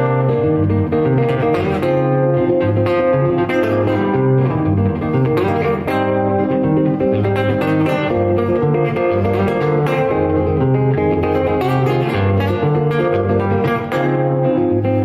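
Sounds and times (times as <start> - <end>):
plucked guitar notes: 0.0 - 15.0.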